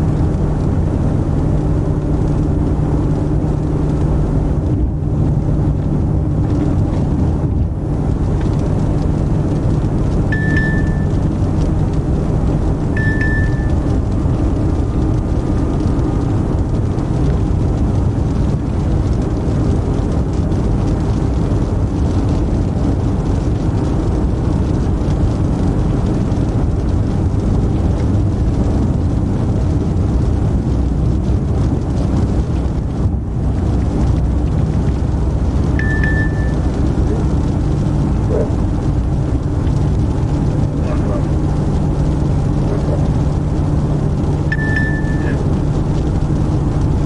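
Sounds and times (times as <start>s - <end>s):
car road and engine noise: 0.0s - 47.0s
short high beep: 10.4s - 11.2s, 13.0s - 13.9s, 35.8s - 36.7s, 44.5s - 45.4s.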